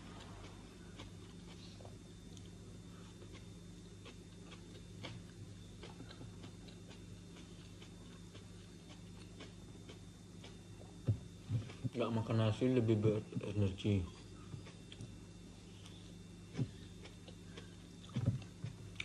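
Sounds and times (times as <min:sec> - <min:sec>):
person chewing: 0:00.0 - 0:12.0, 0:14.0 - 0:19.0
steady low hum: 0:00.0 - 0:19.0.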